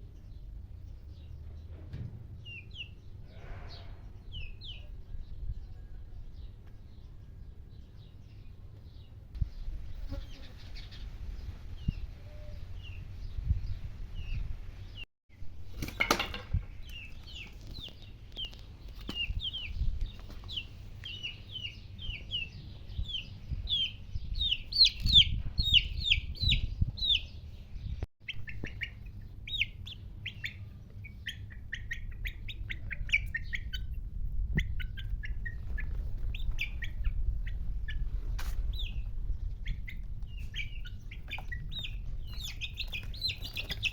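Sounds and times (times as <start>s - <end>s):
small birds chirping: 0.0s - 15.1s, 16.5s - 43.9s
low rumble: 19.4s - 43.0s.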